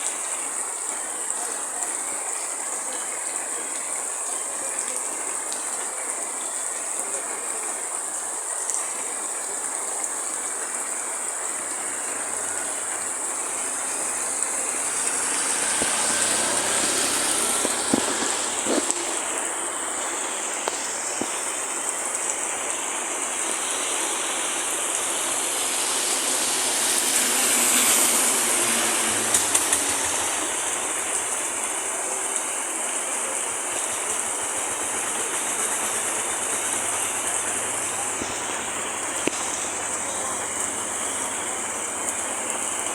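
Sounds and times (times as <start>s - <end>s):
heavy rain falling: 0.0s - 42.9s.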